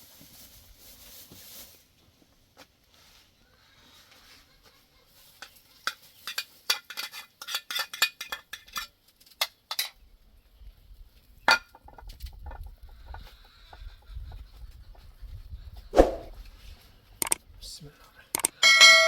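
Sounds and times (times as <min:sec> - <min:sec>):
dishes and utensils clinking: 0:05.4 - 0:08.9, 0:09.7 - 0:10.0.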